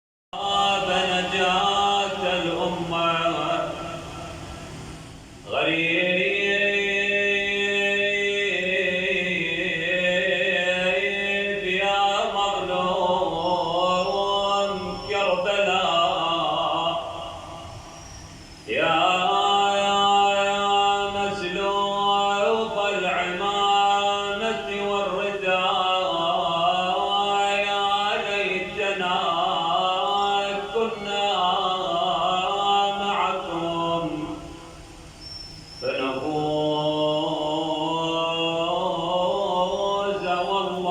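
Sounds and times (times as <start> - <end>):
man chanting mournful note: 0.4 - 4.3, 35.8 - 40.9
slow wordless chanting: 0.4 - 40.9.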